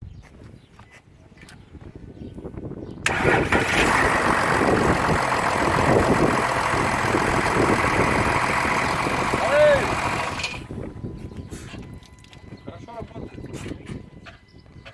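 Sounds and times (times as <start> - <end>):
diesel engine cranking and running: 3.0 - 11.1.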